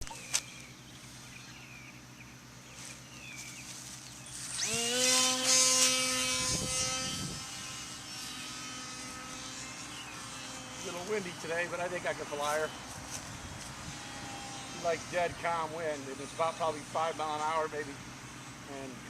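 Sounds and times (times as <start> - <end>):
birds chirping faintly: 0.0 - 4.6, 8.8 - 19.0
electric motor propeller whine: 0.0 - 19.0.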